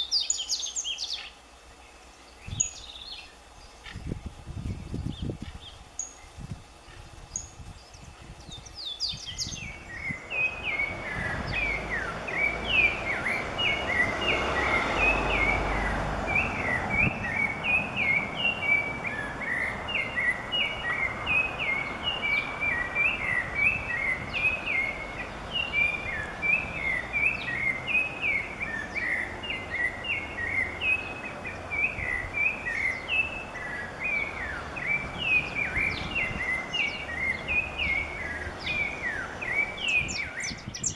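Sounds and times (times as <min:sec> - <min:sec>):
songbird chirping: 0:00.0 - 0:04.4, 0:05.0 - 0:40.9
outdoor hiss: 0:00.0 - 0:13.6.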